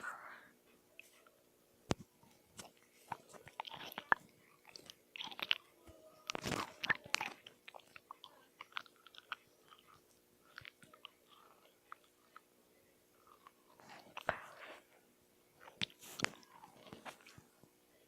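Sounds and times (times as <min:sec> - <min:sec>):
person chewing crunchy food: 0:02.2 - 0:12.5, 0:13.2 - 0:14.8, 0:15.6 - 0:17.6.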